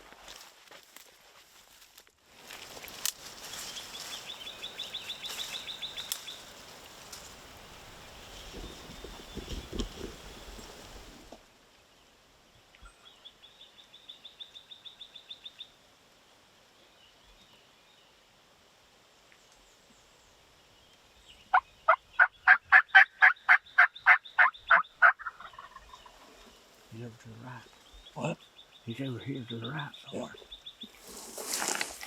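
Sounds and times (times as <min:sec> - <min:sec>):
turkey yelps: 0:21.5 - 0:26.0.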